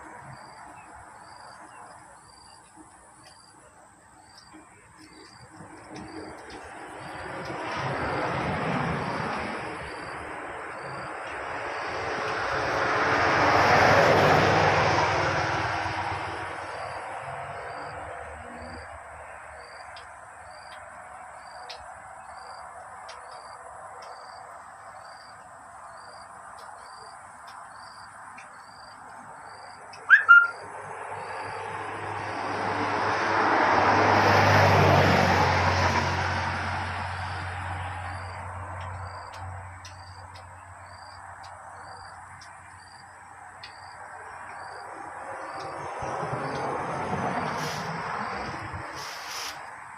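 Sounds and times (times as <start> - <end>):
vehicle passing: 4.0 - 27.1, 27.8 - 49.9
high bird chirps: 29.9 - 30.7.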